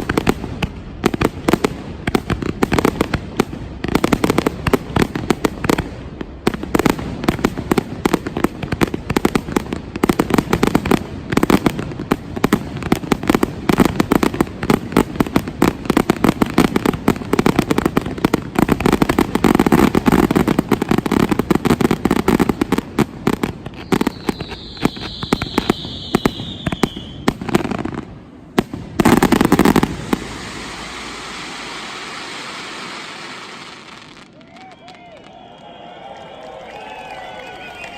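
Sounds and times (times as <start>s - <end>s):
fireworks bangs and crackling: 0.0s - 35.8s
falling firework whistle: 23.6s - 27.4s, 29.1s - 37.9s.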